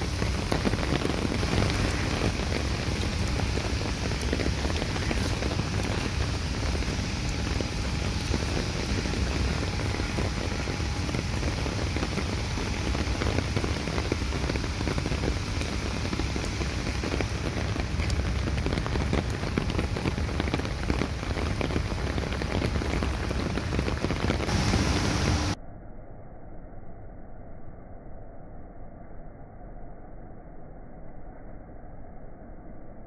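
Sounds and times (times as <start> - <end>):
steady rain falling: 0.0 - 25.6
low rumble: 0.0 - 33.0.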